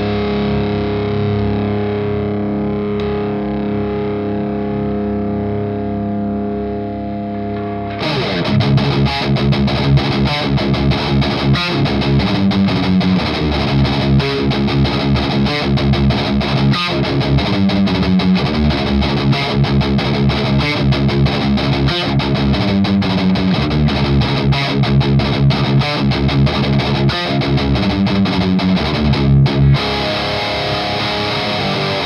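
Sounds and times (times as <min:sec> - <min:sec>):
distorted electric guitar riff: 0:00.0 - 0:32.0.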